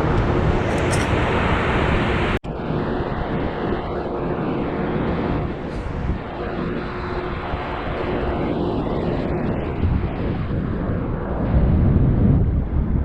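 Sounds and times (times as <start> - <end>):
jet airliner engine rumble: 0.0 - 13.0.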